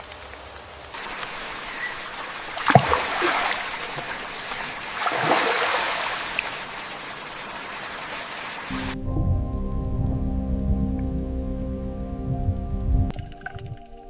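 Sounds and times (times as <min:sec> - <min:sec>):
water rushing: 0:00.9 - 0:09.0
sharp water splash: 0:01.0 - 0:08.7.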